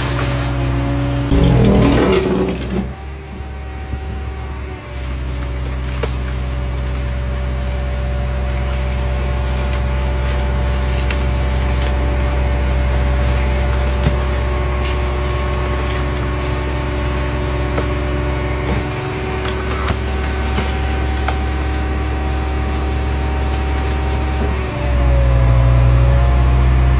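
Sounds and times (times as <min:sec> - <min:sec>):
motor droning: 0:01.3 - 0:03.4.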